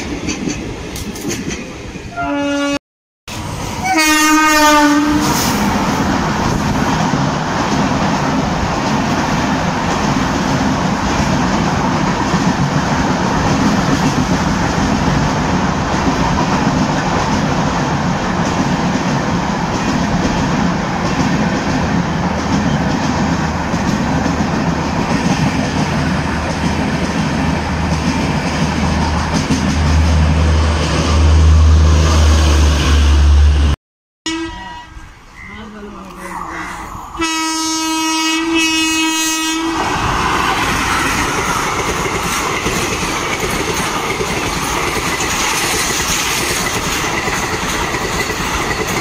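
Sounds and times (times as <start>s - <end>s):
train wheels rumbling on rails: 0.0s - 2.2s, 3.3s - 33.7s, 38.3s - 49.0s
locomotive horn: 2.1s - 2.8s, 3.8s - 5.5s, 32.8s - 35.6s, 37.2s - 39.8s.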